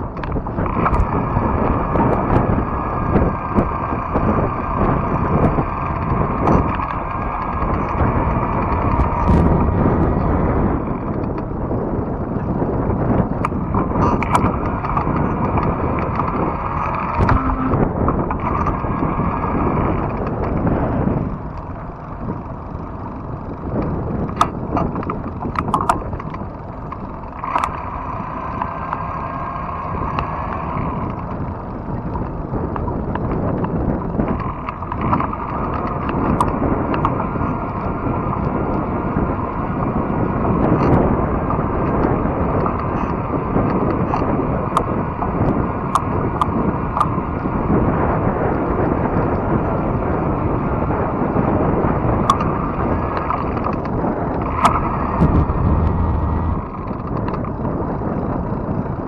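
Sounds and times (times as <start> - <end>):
bike tires rumbling on trail: 0.0 - 59.0
wind rushing over microphone: 0.0 - 59.0
sharp clicks and rattles: 13.3 - 18.7, 23.6 - 27.8, 53.2 - 57.6.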